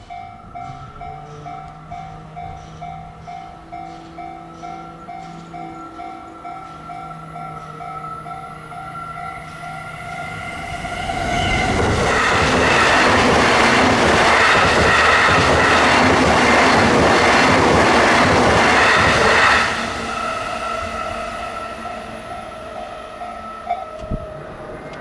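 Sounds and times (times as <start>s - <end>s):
level crossing warning bell: 0.0s - 25.0s.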